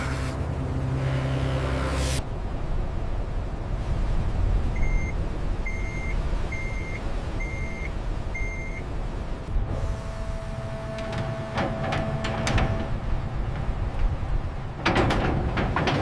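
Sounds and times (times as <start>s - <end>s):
low engine rumble: 0.0s - 16.0s
machinery warning beeps: 4.8s - 8.8s.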